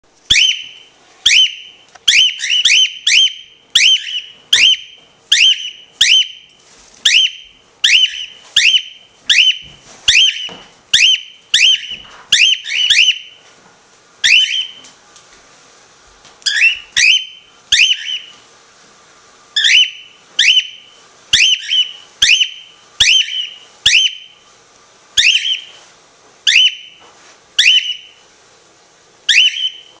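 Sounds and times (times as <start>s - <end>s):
birds calling: 0.3s - 13.4s, 14.2s - 14.8s, 16.4s - 18.4s, 19.6s - 24.3s, 25.2s - 25.7s, 27.6s - 28.2s, 29.3s - 29.9s.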